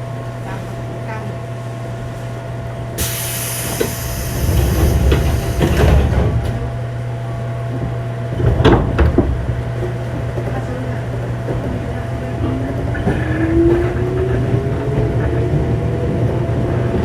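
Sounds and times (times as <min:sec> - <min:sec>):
low train equipment hum: 0:00.0 - 0:17.0
air hiss: 0:03.0 - 0:06.1
sliding doors thudding shut: 0:03.0 - 0:06.7.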